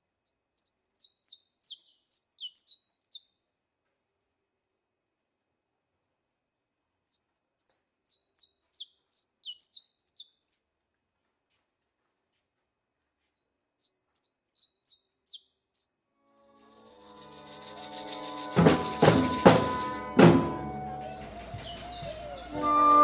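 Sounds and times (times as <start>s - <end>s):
bird chirping high falling notes: 16.2s - 23.0s.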